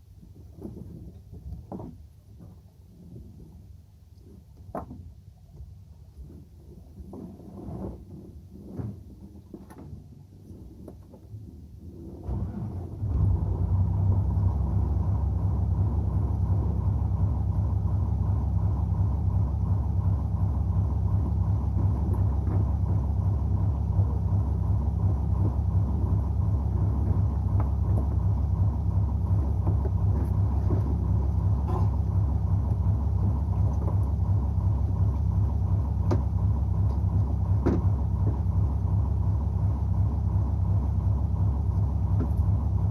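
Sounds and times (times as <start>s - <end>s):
boat engine rumbling: 0.0s - 42.9s.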